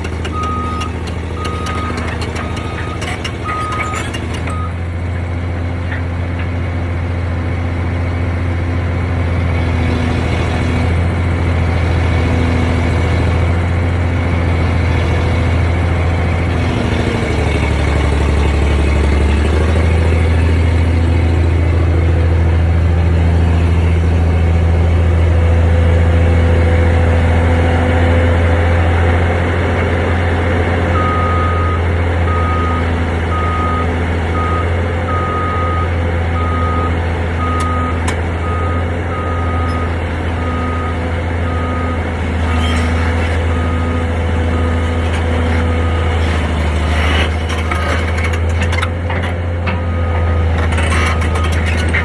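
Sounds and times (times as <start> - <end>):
reversing alarm beeps: 0.0 - 4.8, 31.0 - 42.8, 43.4 - 44.8
heavy machine engine running: 0.0 - 52.0.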